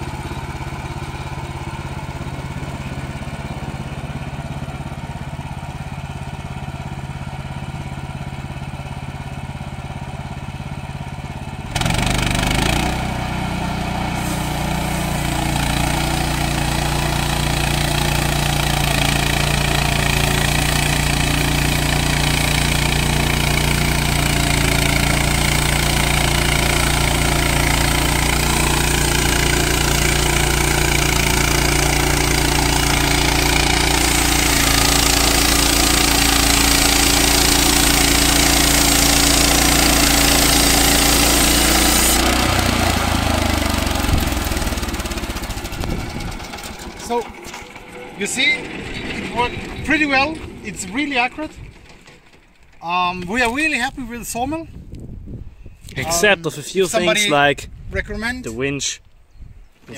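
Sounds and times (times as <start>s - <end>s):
sawmill petrol engine running: 0.0s - 54.6s
band blade sawing log: 11.7s - 45.9s.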